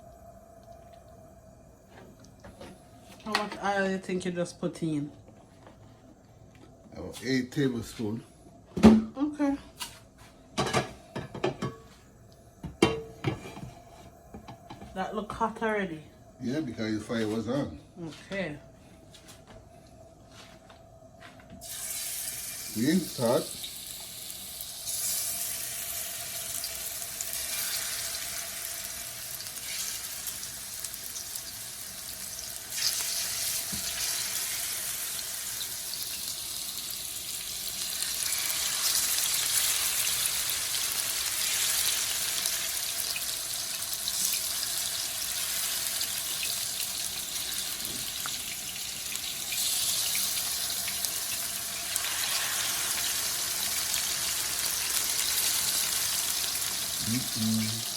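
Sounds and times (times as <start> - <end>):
chicken frying in oil: 21.6 - 57.9.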